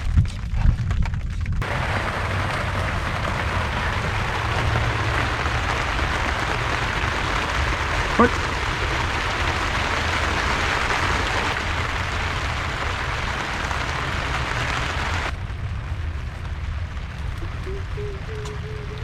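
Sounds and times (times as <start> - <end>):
low rumble: 0.0 - 19.0
rain hissing: 1.6 - 19.0.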